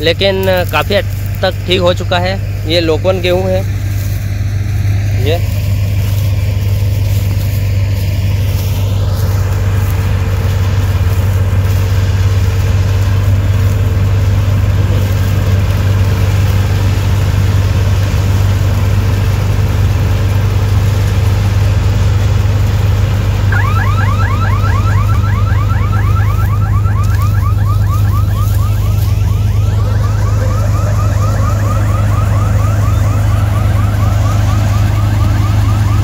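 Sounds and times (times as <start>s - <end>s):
combine harvester engine drone: 0.0s - 36.0s.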